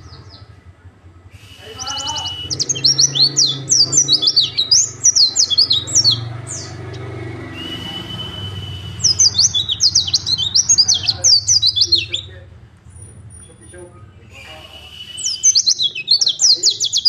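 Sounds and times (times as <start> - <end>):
thin steady whistle: 1.3 - 4.5, 7.4 - 9.5, 14.4 - 15.8
bird singing high sweeping notes: 1.6 - 12.4, 13.3 - 17.0.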